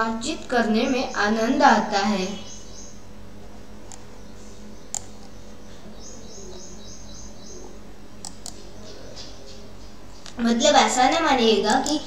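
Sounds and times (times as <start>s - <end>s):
steady low hum: 0.0s - 12.0s
bird chirping: 0.8s - 3.1s, 4.1s - 10.4s
short clicks: 8.2s - 8.6s.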